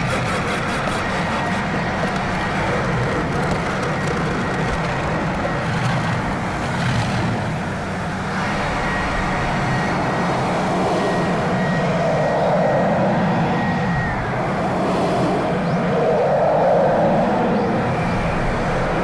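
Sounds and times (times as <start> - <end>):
car wash equipment running: 0.0 - 10.7.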